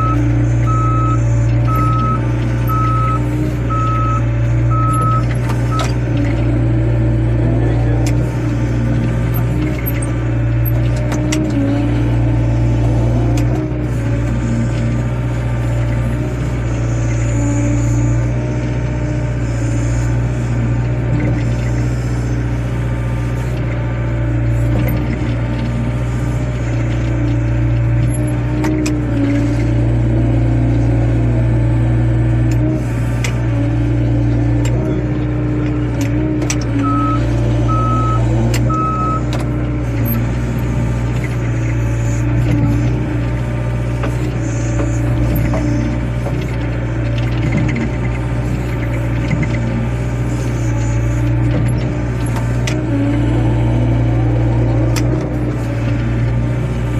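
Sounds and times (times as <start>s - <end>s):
short beeps: 0.0s - 5.9s, 36.8s - 39.3s
excavator diesel engine running: 0.0s - 56.9s.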